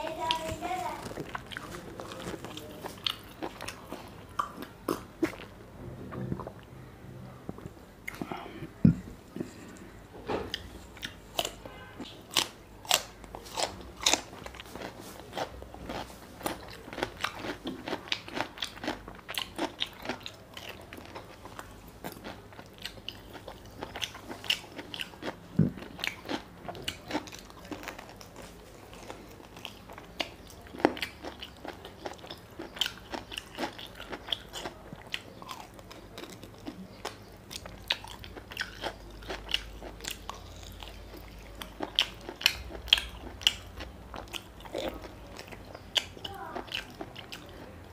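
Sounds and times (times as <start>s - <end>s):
chewing and mouth smacks: 0.3s - 5.5s, 7.5s - 8.3s, 10.5s - 47.8s.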